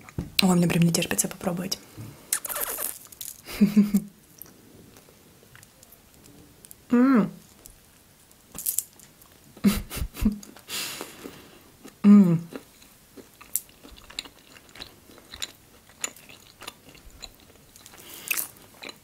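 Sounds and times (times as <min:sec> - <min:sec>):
wet chewing smacks: 0:02.3 - 0:02.9
nuts crunching: 0:02.4 - 0:03.4, 0:11.8 - 0:19.0
person humming: 0:12.0 - 0:12.5.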